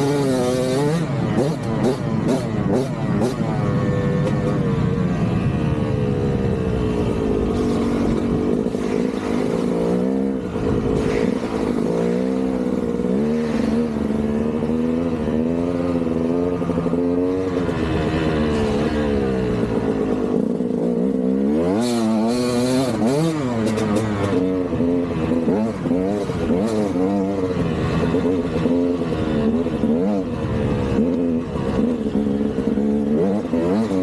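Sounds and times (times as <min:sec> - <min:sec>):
dirt bike engine revving: 0:00.0 - 0:04.6, 0:06.3 - 0:34.0.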